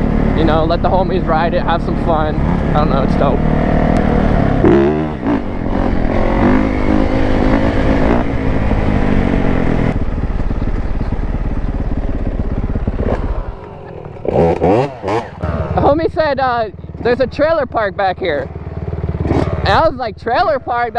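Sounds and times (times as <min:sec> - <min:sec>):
dirt bike engine revving: 0:00.0 - 0:20.9.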